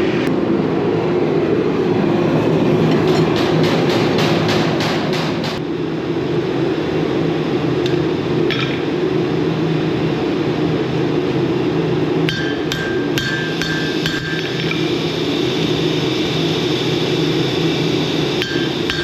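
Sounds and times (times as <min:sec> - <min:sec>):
steady low roar: 0:00.0 - 0:08.4
hammer strikes on steel: 0:02.9 - 0:05.6, 0:12.3 - 0:14.8, 0:18.4 - 0:19.0.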